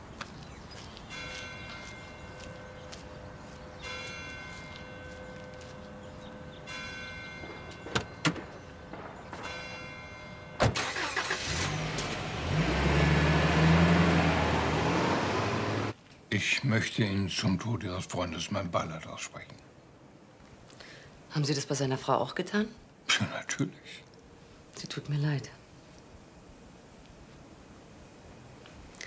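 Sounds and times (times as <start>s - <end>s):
bells ringing: 1.1s - 10.6s
car engine starting and running: 10.6s - 16.0s.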